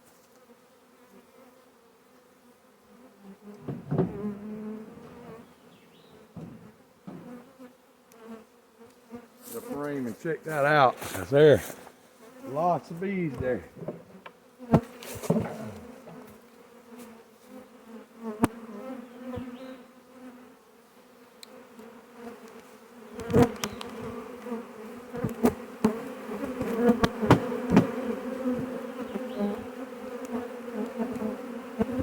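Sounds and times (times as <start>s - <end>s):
bee swarm buzzing: 0.4s - 32.0s
sharp clicks and knocks: 3.5s - 5.4s, 6.3s - 7.4s.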